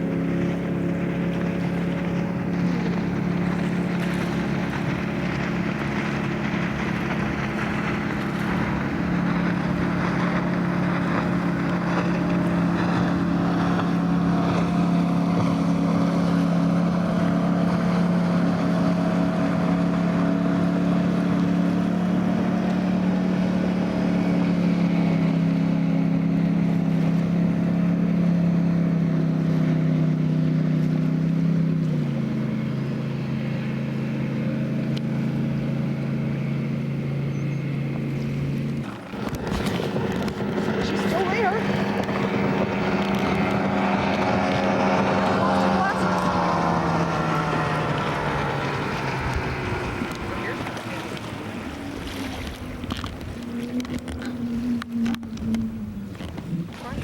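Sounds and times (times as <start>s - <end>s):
boat engine running: 0.0s - 57.0s
water rushing: 0.0s - 57.0s
wind on microphone: 37.7s - 57.0s.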